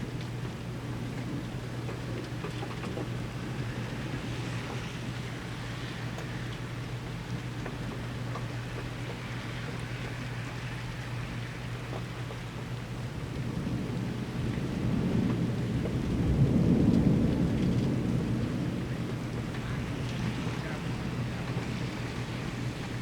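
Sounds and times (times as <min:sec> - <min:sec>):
steady rain: 0:00.0 - 0:23.0
thunder rumbling: 0:13.4 - 0:23.0.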